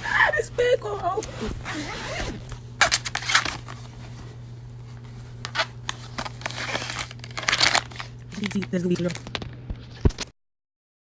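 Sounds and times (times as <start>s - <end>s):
steady low hum: 0.0s - 10.2s
paper bag rustling and crinkling: 2.8s - 10.2s.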